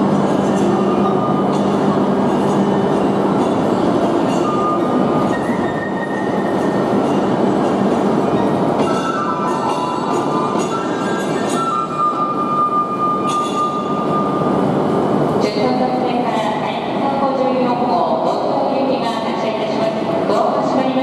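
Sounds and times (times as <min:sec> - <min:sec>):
train rumble and hum: 0:00.0 - 0:21.0.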